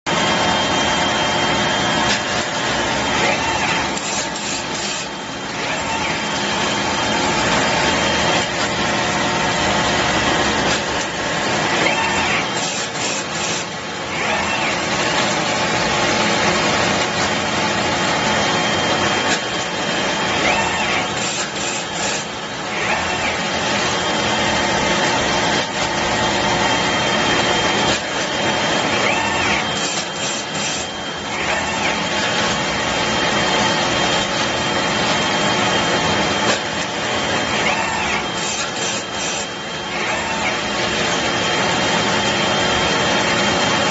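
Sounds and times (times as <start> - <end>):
machine hissing and humming: 0.1 - 43.9
machine mechanical hiss: 2.0 - 6.9, 19.0 - 23.9.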